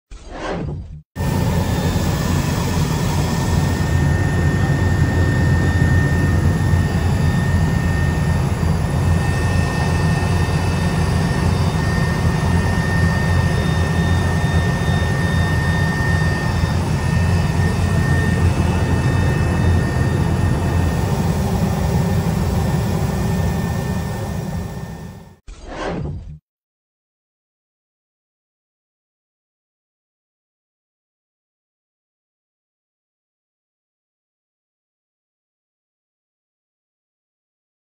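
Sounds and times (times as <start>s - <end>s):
aircraft engine and airflow drone: 1.2s - 25.4s.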